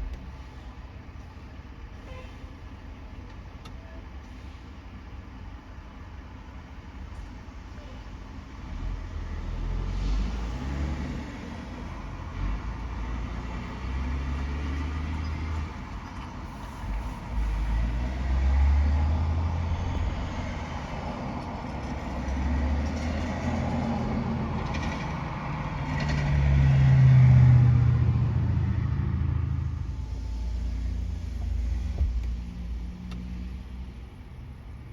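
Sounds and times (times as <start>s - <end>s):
heavy trucks driving past: 8.6s - 34.5s.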